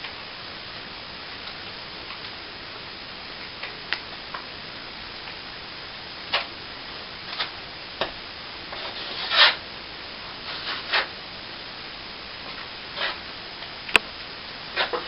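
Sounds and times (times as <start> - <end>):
steady hiss: 0.0 - 15.0
trowel scraping: 8.7 - 9.6, 10.4 - 11.1, 13.0 - 13.2, 14.7 - 15.0.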